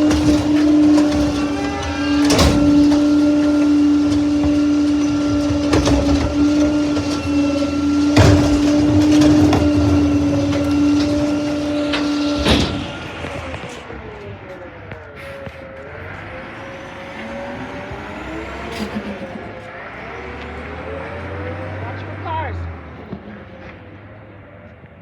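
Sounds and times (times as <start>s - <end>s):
hydraulic whine: 0.0s - 22.0s
loud metal bangs: 0.0s - 22.2s.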